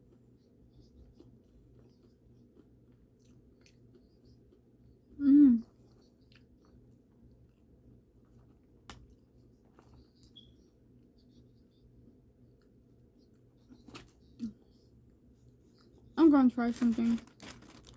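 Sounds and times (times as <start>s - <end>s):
person chewing food: 0.0s - 16.2s.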